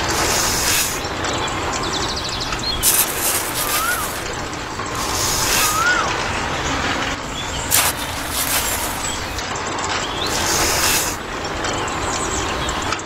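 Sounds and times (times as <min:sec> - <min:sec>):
sand pouring into toy mixer: 0:00.0 - 0:01.0, 0:02.8 - 0:04.3, 0:05.0 - 0:06.0, 0:07.7 - 0:09.4, 0:10.3 - 0:11.2.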